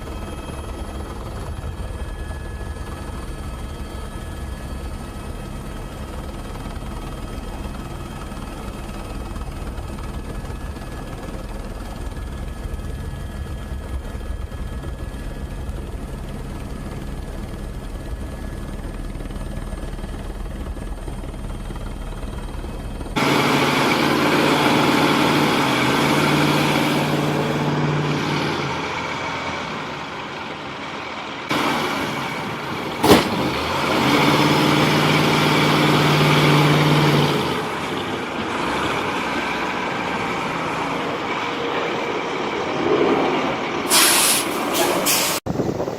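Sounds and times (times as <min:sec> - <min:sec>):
heavy vehicle engines rumbling: 0:23.1 - 0:45.4.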